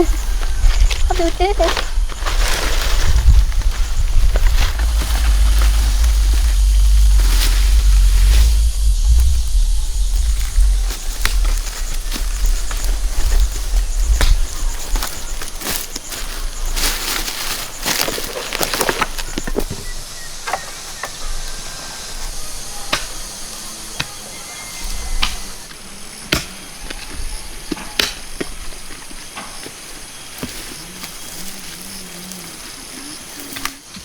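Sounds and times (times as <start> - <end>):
low rumble: 0.0 - 17.0
rustling: 0.0 - 19.8.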